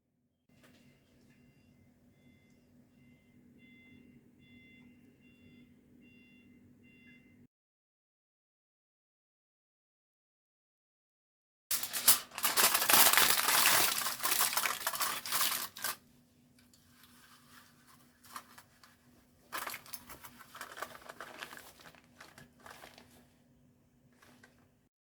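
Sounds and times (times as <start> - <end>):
crinkling and rustling: 11.7 - 16.0, 16.6 - 23.4, 24.1 - 24.8.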